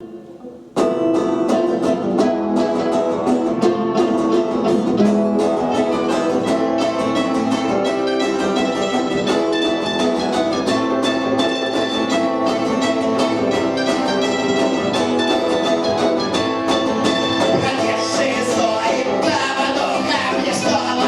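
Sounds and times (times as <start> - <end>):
punk band playing live: 0.0 - 21.0.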